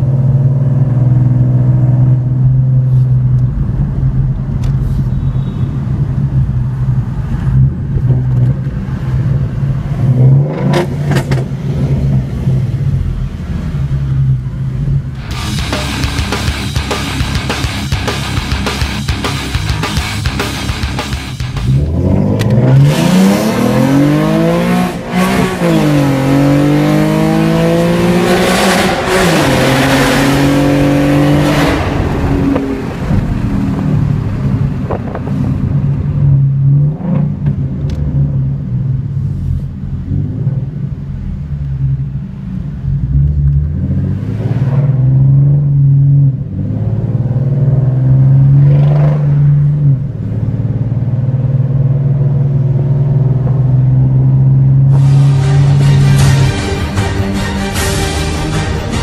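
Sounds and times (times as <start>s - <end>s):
car engine accelerating from cabin: 21.6s - 56.0s.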